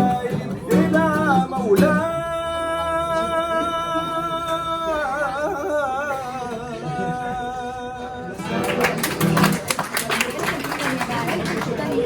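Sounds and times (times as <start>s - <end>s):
man singing wordless melismatic song: 0.0s - 8.6s.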